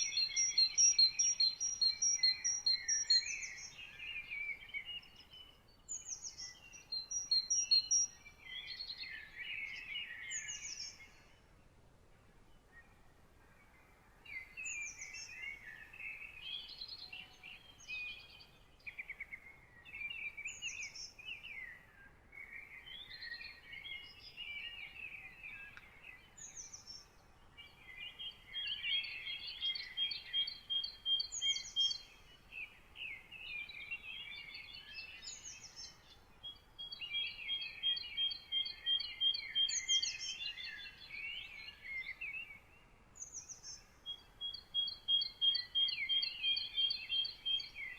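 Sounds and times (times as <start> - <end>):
songbirds singing: 0.0 - 47.9.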